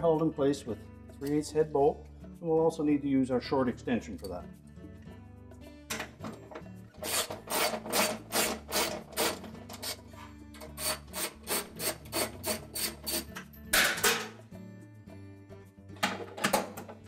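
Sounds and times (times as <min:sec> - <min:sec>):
ratchet wrench rasping: 0:07.0 - 0:13.4.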